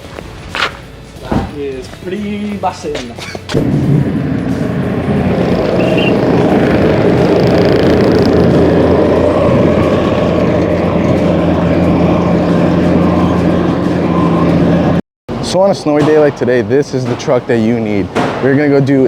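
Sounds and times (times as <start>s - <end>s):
truck engine humming: 2.0s - 15.4s.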